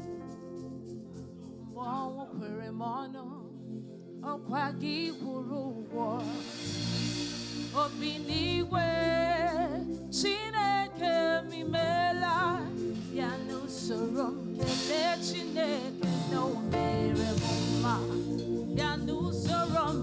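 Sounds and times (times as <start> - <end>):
sustained keyboard chords: 0.0 - 20.0
cymbal swell: 6.2 - 8.8
deep bass: 6.2 - 11.0, 11.6 - 14.9, 16.6 - 20.0
person singing with vibrato: 7.8 - 20.0.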